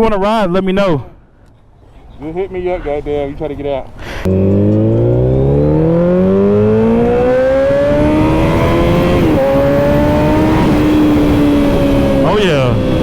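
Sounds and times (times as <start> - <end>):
motorcycle engine accelerating hard: 4.3 - 13.0.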